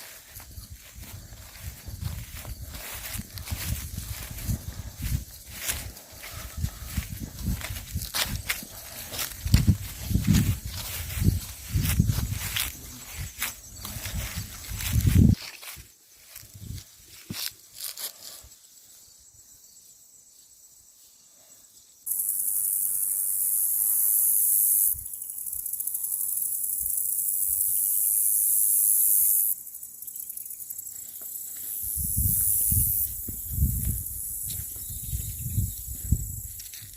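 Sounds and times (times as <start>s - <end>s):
insect shrill buzzing call: 0.0s - 15.4s, 21.7s - 36.8s
footstep thumps: 1.0s - 12.7s.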